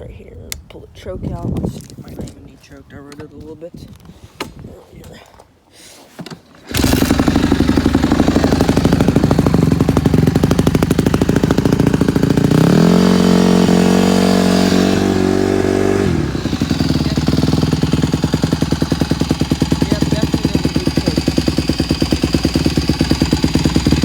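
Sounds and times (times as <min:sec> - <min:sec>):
motorcycle engine idling and revving: 0:06.7 - 0:24.0.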